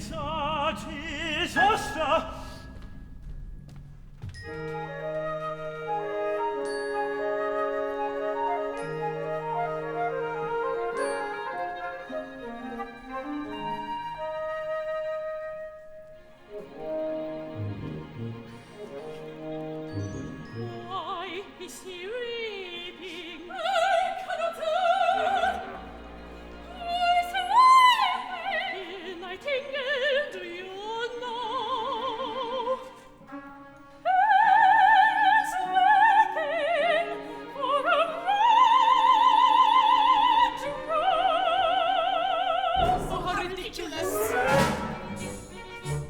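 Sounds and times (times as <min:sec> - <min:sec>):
operatic voice singing: 0:00.0 - 0:02.8, 0:34.1 - 0:46.0
instrumental accompaniment: 0:00.0 - 0:21.4, 0:39.0 - 0:46.0.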